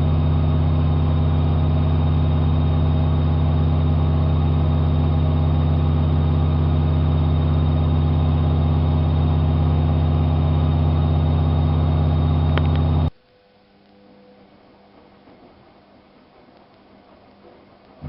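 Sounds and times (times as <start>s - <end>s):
washing machine humming: 0.0s - 13.2s.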